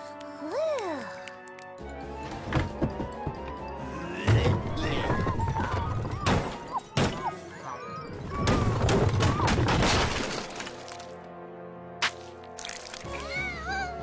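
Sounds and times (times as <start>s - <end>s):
crashing and shattering effects: 8.3s - 11.1s.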